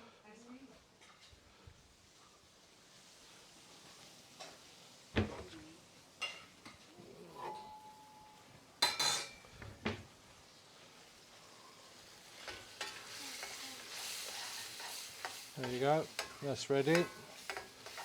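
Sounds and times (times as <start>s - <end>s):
metal kitchenware clanking: 7.2s - 9.5s, 14.8s - 18.0s.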